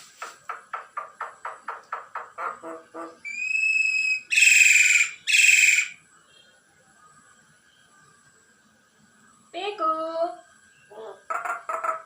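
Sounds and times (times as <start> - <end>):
bird chick chirping: 1.2 - 6.0, 10.8 - 12.0
bird whistling: 3.2 - 6.0
bird harsh screeches: 3.3 - 6.0.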